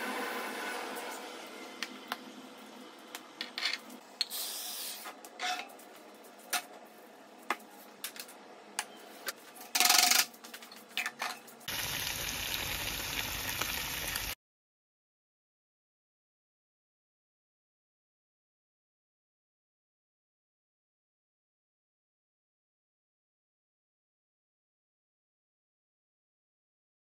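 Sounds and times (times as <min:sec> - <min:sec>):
fish sizzling in oil: 0:11.7 - 0:14.4.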